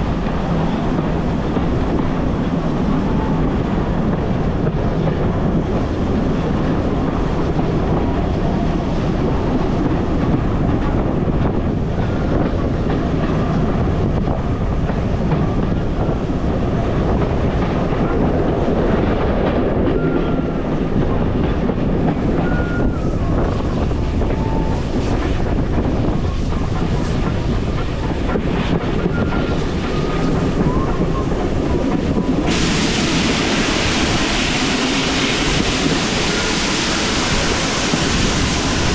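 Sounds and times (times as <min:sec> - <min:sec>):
train wheels rumbling on track: 0:00.0 - 0:38.9
loud hiss: 0:32.3 - 0:38.9.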